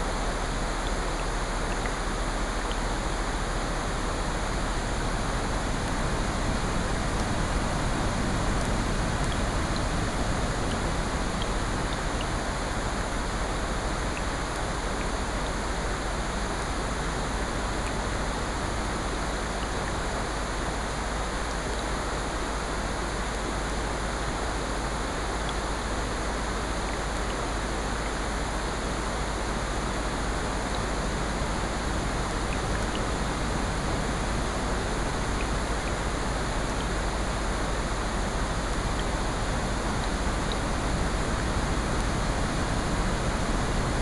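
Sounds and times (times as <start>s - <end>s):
steady rain: 0.0s - 44.0s
ocean surf: 29.8s - 44.0s.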